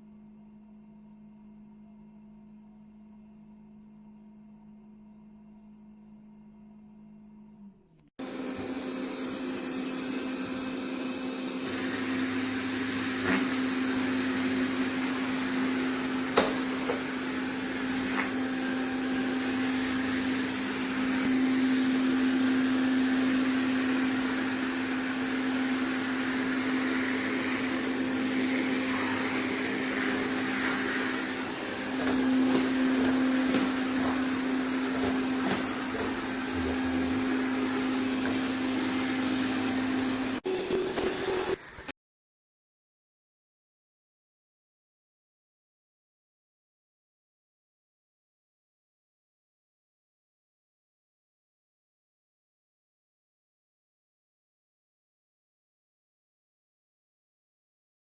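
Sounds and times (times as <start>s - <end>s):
robot vacuum motor whirring: 11.4s - 41.9s.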